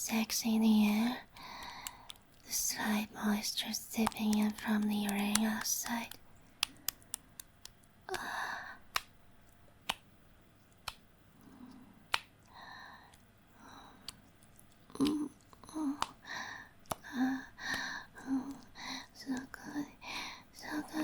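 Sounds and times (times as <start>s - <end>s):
woman sighing and moaning: 8.1s - 8.8s, 14.9s - 19.1s
wet mouth clicks: 14.0s - 16.2s.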